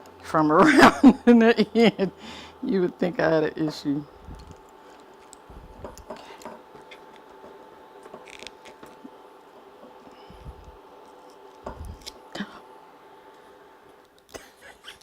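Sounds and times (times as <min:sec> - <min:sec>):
faint steady hum: 0:00.0 - 0:15.0
corkscrew twisting into cork: 0:08.1 - 0:09.0.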